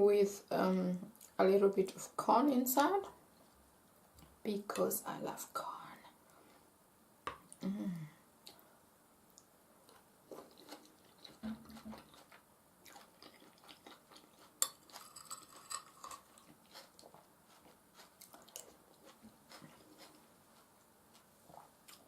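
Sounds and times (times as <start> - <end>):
person chewing food: 9.3 - 22.0.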